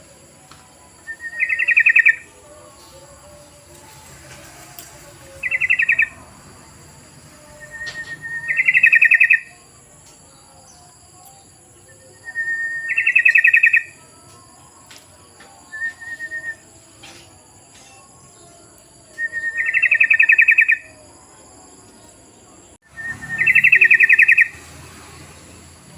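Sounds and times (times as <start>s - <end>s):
bulbul bubbling song: 1.1s - 2.3s, 5.3s - 6.2s, 7.6s - 9.7s, 11.8s - 14.0s, 19.1s - 21.0s, 22.8s - 24.6s.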